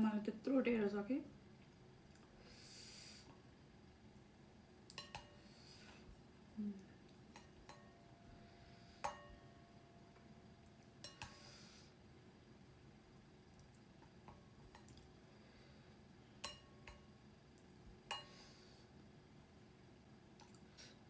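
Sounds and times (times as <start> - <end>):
dishes and utensils clinking: 4.9 - 5.3.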